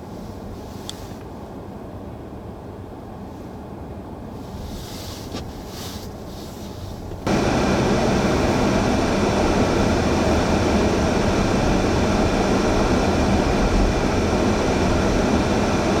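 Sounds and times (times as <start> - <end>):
vehicle road noise: 4.4 - 16.0
blizzard wind rushing: 7.2 - 16.0
low hum: 7.2 - 16.0.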